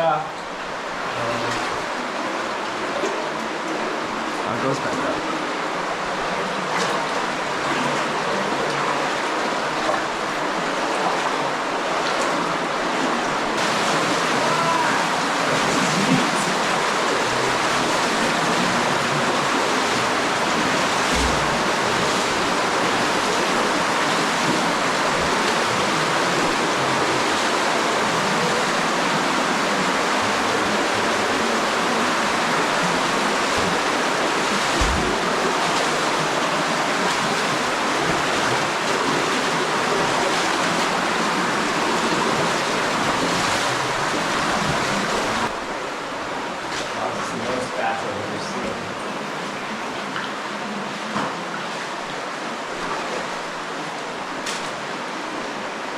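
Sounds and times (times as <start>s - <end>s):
spring water rushing: 0.4s - 55.9s
dull knocks: 21.0s - 22.4s, 34.8s - 35.3s.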